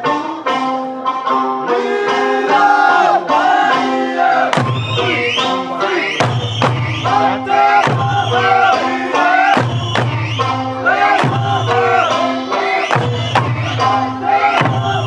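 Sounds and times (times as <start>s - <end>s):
person singing folk melody: 0.0s - 15.0s
group shouts: 1.8s - 6.2s, 7.0s - 9.9s, 10.7s - 15.0s
hard drum strikes: 4.5s - 5.2s, 6.2s - 8.6s, 9.4s - 12.0s.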